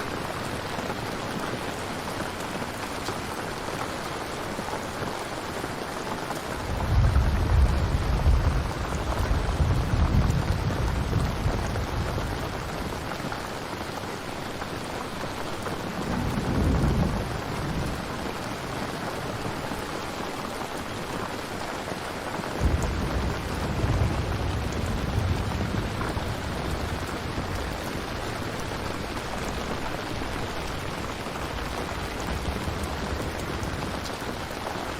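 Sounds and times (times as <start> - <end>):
steady rain: 0.0 - 34.9
thunder rumbling: 6.5 - 13.2, 15.8 - 19.7, 22.6 - 34.6.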